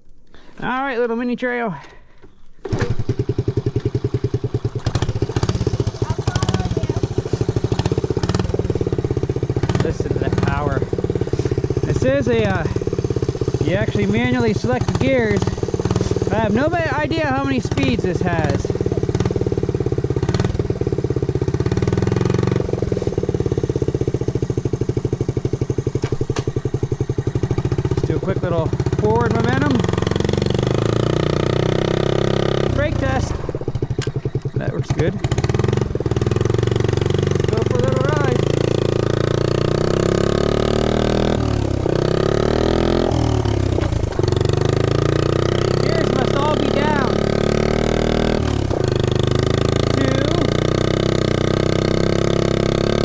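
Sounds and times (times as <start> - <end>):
small motorbike engine idling: 0.3 - 53.0.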